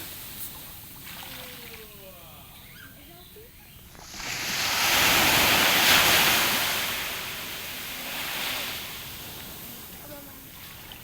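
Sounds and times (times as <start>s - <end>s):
sea waves breaking: 3.9s - 11.0s.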